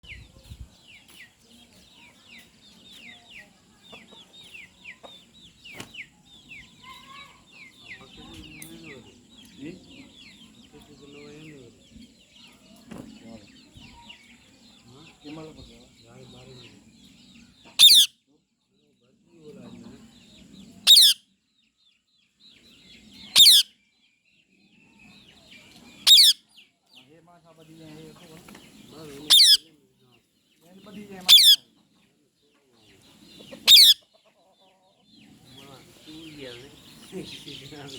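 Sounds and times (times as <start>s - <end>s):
small birds cheeping: 0.0s - 37.9s
bird harsh call: 17.8s - 18.1s, 20.9s - 21.2s, 23.3s - 23.7s, 26.0s - 26.4s, 29.3s - 29.6s, 31.3s - 31.6s, 33.6s - 34.0s.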